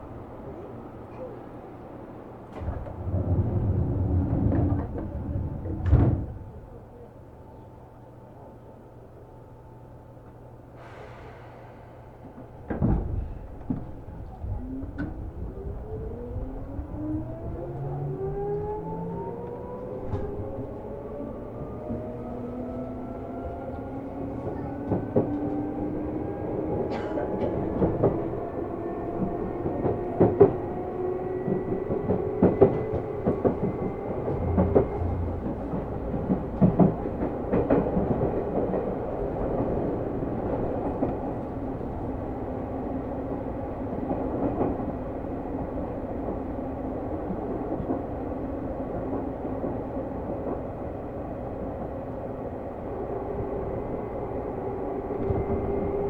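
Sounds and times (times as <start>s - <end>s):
rumble of wheels on rail: 0.0s - 56.0s
wheels clacking over rail joints: 2.4s - 6.8s, 29.1s - 42.1s.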